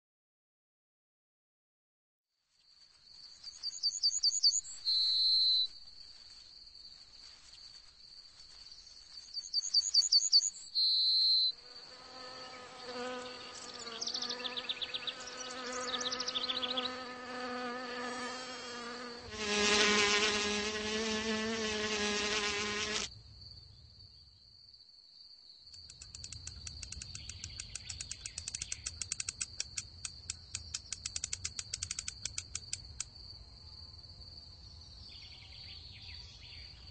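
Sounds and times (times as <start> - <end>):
cricket-like trill: 2.6 - 36.8
flying insects buzzing: 11.6 - 23.2
fast ticking stridulation: 25.8 - 33.1.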